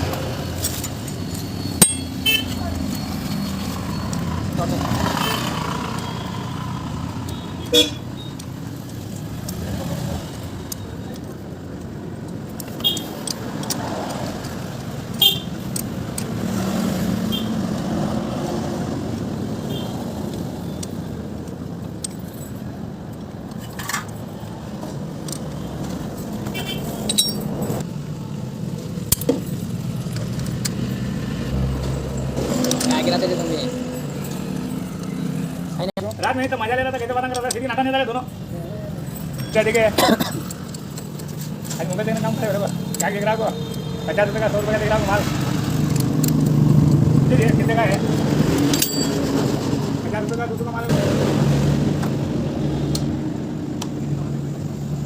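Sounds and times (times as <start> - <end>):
road traffic hum: 0.0 - 55.0
sharp metallic clinks: 0.2 - 6.4, 20.6 - 24.4, 26.6 - 27.8, 37.2 - 44.9, 48.4 - 49.6.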